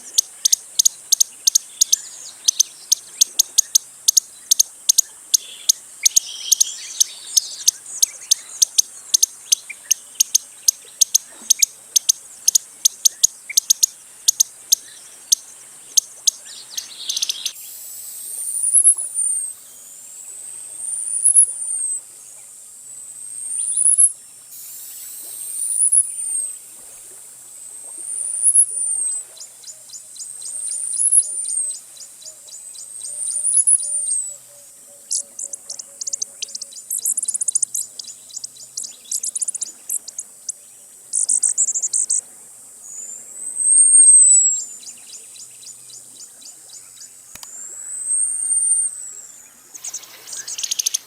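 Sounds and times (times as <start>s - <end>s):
hummingbird sharp high ticks: 0.0s - 15.4s, 35.4s - 40.2s, 47.3s - 47.6s.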